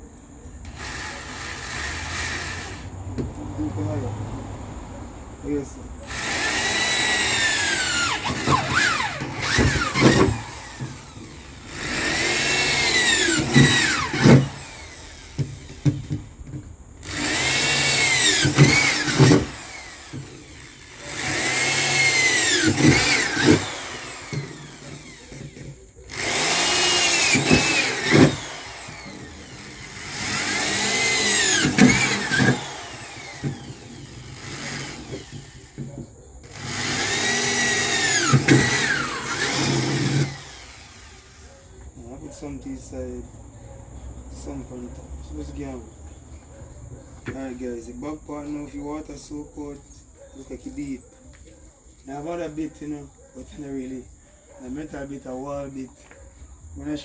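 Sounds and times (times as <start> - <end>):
power drill drilling metal: 0.6 - 3.0, 6.0 - 41.8.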